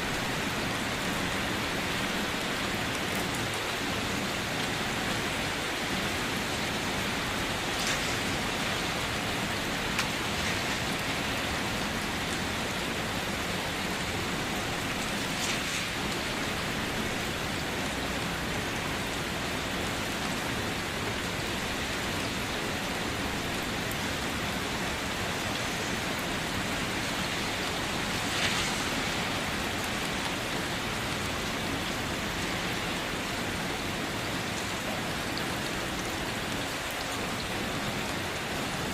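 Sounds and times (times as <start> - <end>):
steady rain hiss: 0.0 - 38.9
single raindrops: 7.5 - 17.2, 25.5 - 30.5.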